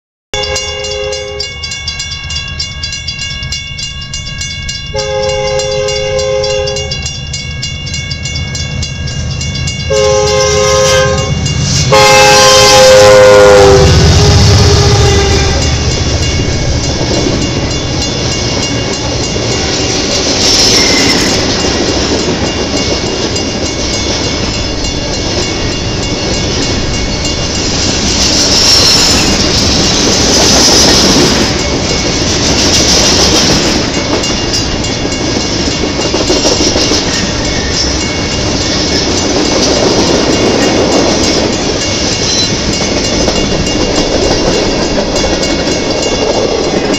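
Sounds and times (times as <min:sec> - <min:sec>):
train wheels rumbling on track: 0:00.4 - 0:46.9
wheel squeal: 0:20.4 - 0:21.5, 0:28.4 - 0:29.6.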